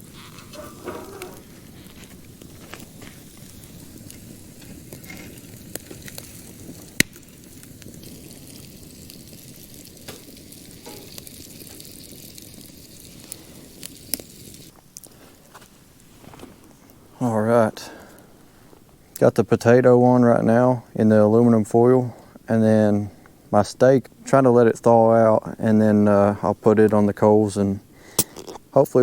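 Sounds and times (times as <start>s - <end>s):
loud crack of fire: 0.0s - 19.8s
campfire hissing and popping: 0.0s - 29.0s.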